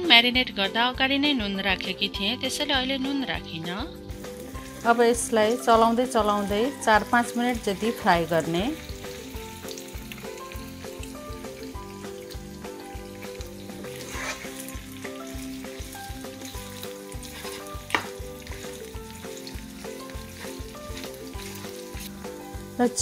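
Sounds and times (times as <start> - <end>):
soft music with a beat: 0.0 - 23.0
chicken sizzling in a pan: 4.1 - 23.0
spatula scraping pan: 13.8 - 22.6.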